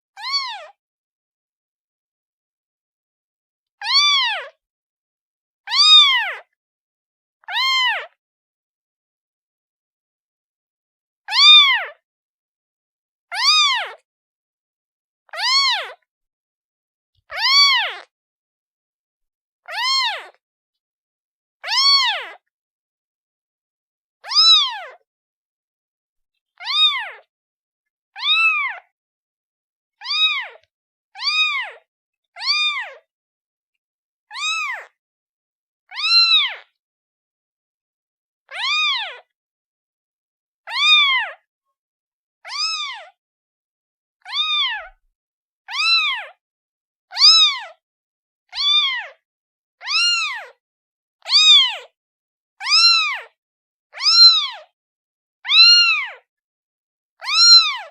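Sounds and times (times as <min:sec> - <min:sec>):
kitten meowing: 0:00.2 - 0:00.7, 0:03.8 - 0:04.4, 0:05.7 - 0:06.4, 0:07.4 - 0:08.1, 0:11.3 - 0:11.8, 0:13.3 - 0:14.0, 0:15.4 - 0:16.0, 0:17.3 - 0:18.0, 0:19.7 - 0:20.4, 0:21.6 - 0:22.4, 0:24.2 - 0:25.0, 0:26.6 - 0:27.2, 0:28.2 - 0:28.9, 0:30.0 - 0:31.8, 0:32.4 - 0:33.0, 0:34.3 - 0:35.0, 0:35.9 - 0:36.6, 0:38.5 - 0:39.2, 0:40.7 - 0:41.4, 0:42.5 - 0:43.1, 0:44.3 - 0:45.0, 0:45.7 - 0:46.4, 0:47.2 - 0:47.6, 0:48.6 - 0:49.0, 0:49.8 - 0:50.5, 0:51.3 - 0:51.8, 0:52.6 - 0:53.3, 0:54.0 - 0:54.6, 0:55.5 - 0:56.2, 0:57.2 - 0:57.9.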